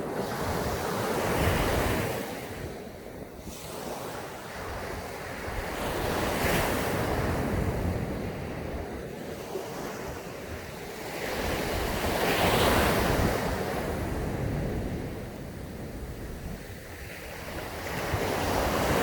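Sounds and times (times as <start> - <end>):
waves breaking on sand: 0.0 - 19.0
wind rumble on microphone: 0.0 - 19.0.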